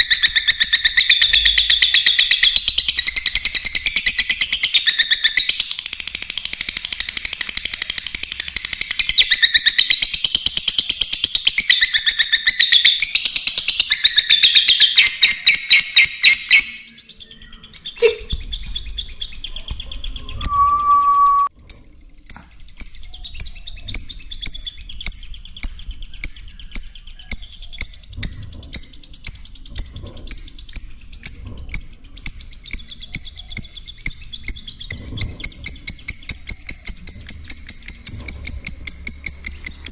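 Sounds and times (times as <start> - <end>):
small birds chirping: 0.0 - 39.9
regular high chirps: 20.2 - 23.6
whistle-like tone: 20.4 - 21.5.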